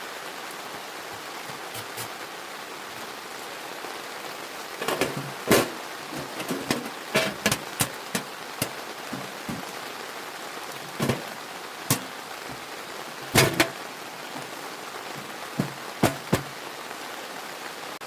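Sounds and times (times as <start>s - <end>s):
steady rain falling: 0.0s - 18.0s
sharp knocks and taps: 15.2s - 16.5s.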